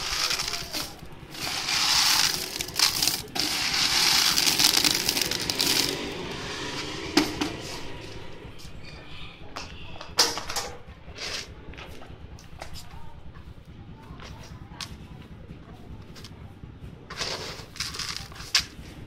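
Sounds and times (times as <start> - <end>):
corn sheller machine working: 0.0 - 8.6, 16.1 - 19.0.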